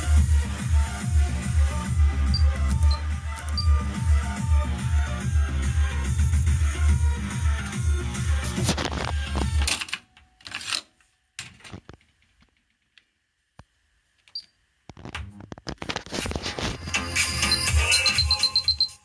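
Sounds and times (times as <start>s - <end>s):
music from car cassette stereo: 0.0s - 9.7s, 16.1s - 19.0s.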